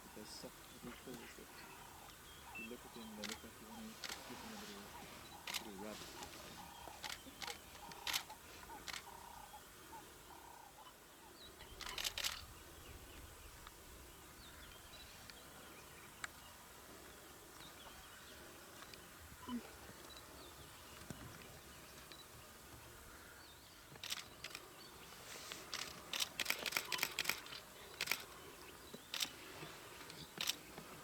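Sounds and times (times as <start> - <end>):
sharp clicks: 3.2 - 4.3, 5.4 - 5.8, 6.9 - 9.1, 11.8 - 12.4, 23.9 - 24.6, 25.5 - 28.4, 29.0 - 29.4, 30.0 - 30.6.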